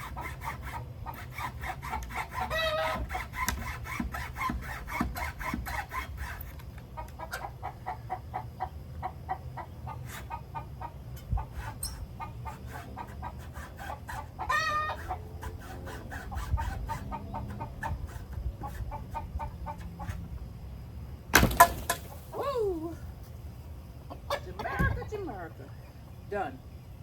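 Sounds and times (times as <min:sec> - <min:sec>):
chickens clucking: 0:06.8 - 0:20.3, 0:23.8 - 0:26.2
chicken wavering call: 0:14.4 - 0:15.2.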